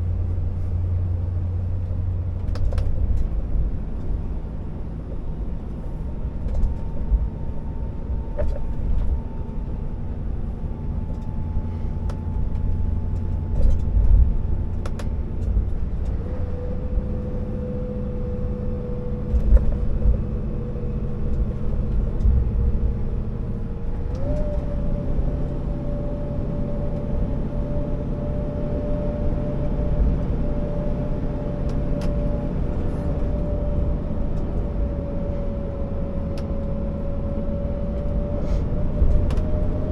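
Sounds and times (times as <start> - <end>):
diesel truck engine rumble: 0.0 - 39.9
thin engine whine: 16.0 - 39.9.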